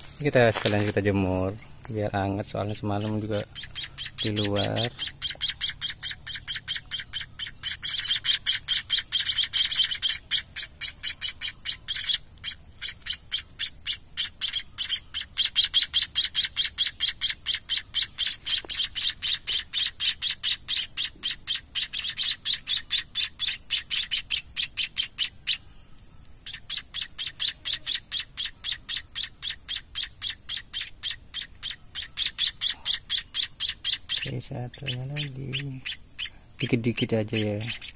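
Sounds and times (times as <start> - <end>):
nestling chirping: 0.0 - 37.9.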